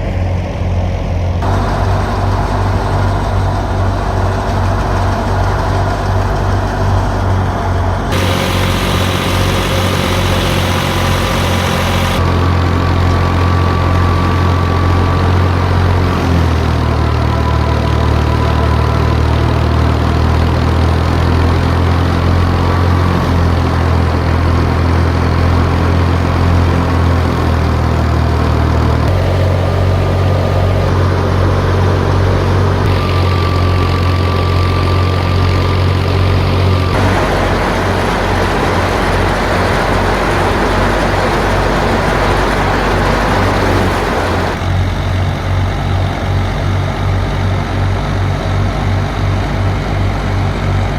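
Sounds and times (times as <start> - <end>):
tractor diesel engine running: 0.0 - 50.9
faint high whine: 8.1 - 16.1, 37.0 - 44.6.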